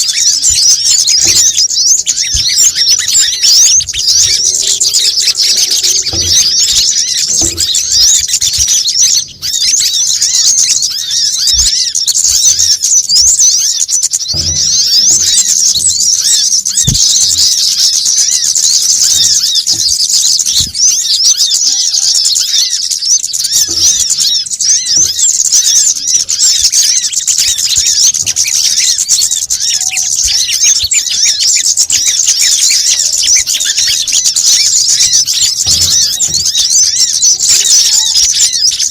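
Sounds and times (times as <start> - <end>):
small birds chattering: 0.0 - 38.9.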